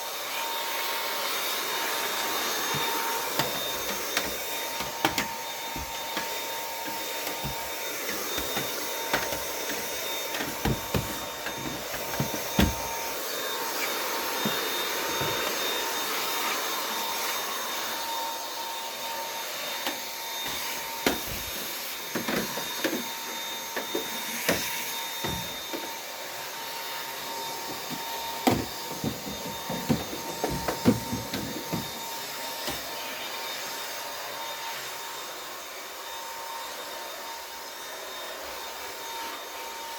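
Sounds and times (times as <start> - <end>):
vacuum cleaner whining: 0.0 - 39.9
sharp clicks and knocks: 2.7 - 6.3.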